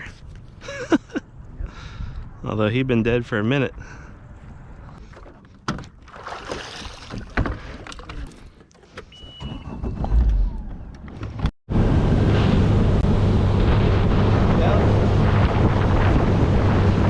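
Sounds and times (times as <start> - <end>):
knocks and rattles on boat: 5.1 - 8.6
water rushing: 6.1 - 7.5
boat engine running fast: 11.7 - 17.0
wind on microphone: 12.2 - 17.0.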